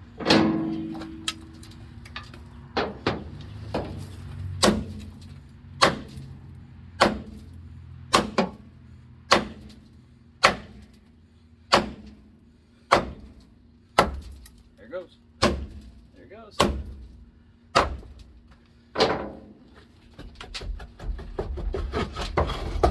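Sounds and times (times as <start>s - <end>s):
hammer striking metal drum: 0.2s - 1.4s.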